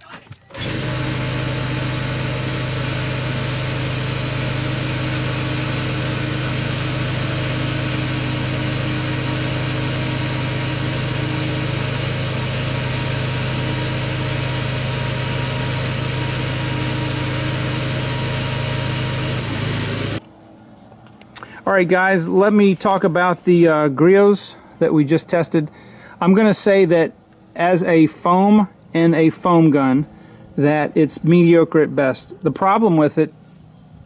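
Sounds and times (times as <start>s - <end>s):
pressure washer motor hum: 0.5s - 20.2s
water spraying hiss: 0.6s - 20.2s.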